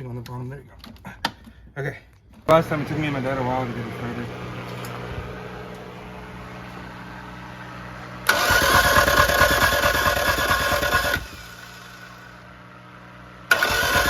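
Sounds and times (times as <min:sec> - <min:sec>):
starter motor cranking engine: 0:07.2 - 0:12.5, 0:13.4 - 0:14.0.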